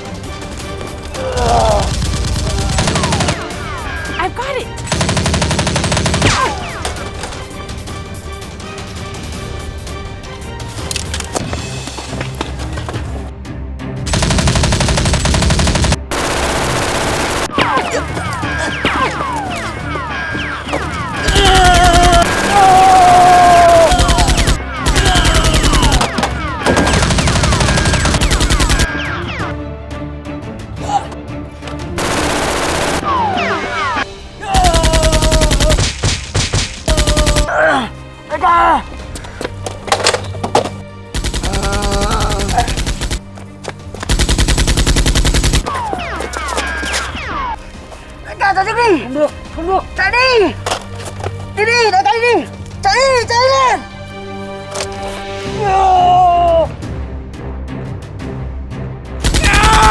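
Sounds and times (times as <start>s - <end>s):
background music: 0.0s - 59.9s
machine-gun sound effects: 14.1s - 17.6s, 21.4s - 26.1s, 26.7s - 29.5s, 32.0s - 33.7s
automatic gunfire: 14.2s - 17.8s, 21.6s - 28.9s, 32.0s - 33.6s, 59.2s - 59.9s.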